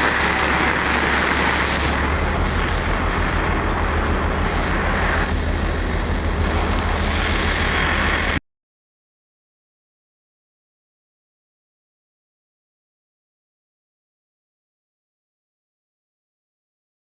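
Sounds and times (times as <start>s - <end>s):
electrical interference buzz: 0.0s - 8.4s
radio static hiss: 0.0s - 8.4s.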